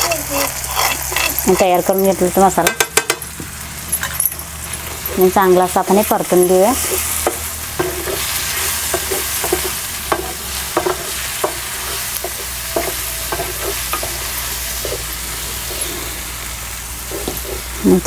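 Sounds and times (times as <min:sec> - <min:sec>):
spatula scraping and tapping pan: 0:00.0 - 0:03.3, 0:06.8 - 0:16.2, 0:17.0 - 0:17.7
masala sizzling in oil: 0:00.0 - 0:18.0.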